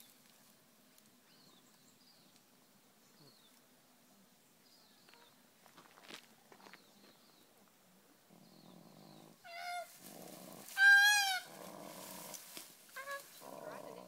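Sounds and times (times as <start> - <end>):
handling crackle in grass: 9.5 - 13.6.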